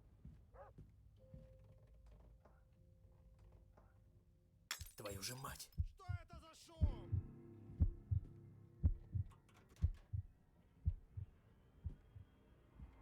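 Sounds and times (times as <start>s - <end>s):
heartbeat thumps: 5.7s - 13.0s.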